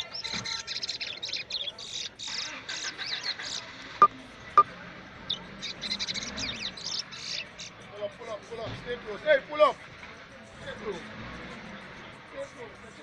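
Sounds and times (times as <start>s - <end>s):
finch singing high chirps: 0.0s - 3.7s, 5.3s - 7.8s.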